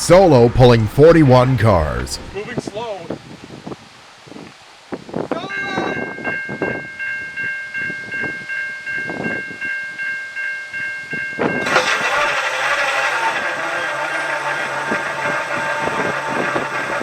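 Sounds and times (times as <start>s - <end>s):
locomotive horn blaring: 0.0s - 2.4s, 11.6s - 17.0s
train wheels clacking: 11.6s - 17.0s.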